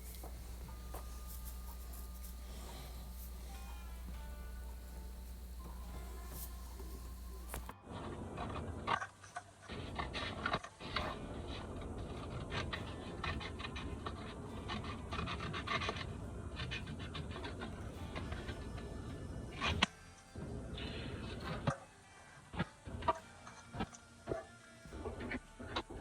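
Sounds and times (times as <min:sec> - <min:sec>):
paper rustling and rubbing: 0:00.0 - 0:07.7.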